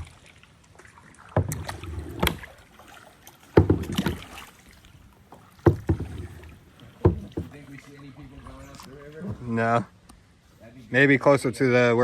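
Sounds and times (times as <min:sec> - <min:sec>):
paddle splashing in river water: 0:00.0 - 0:11.3.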